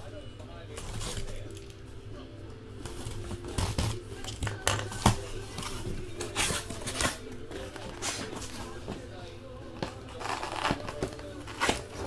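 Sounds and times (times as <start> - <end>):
tape and packaging tearing: 3.1 - 8.4, 10.1 - 12.0.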